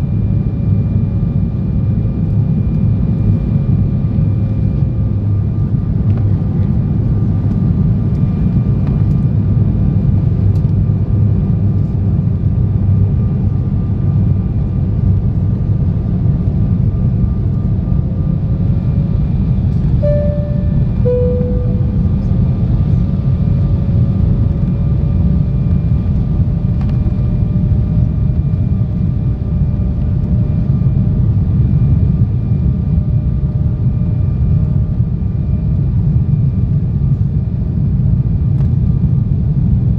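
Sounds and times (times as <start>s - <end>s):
airliner cabin engine rumble: 0.0s - 39.9s
faint constant whine: 20.0s - 23.0s.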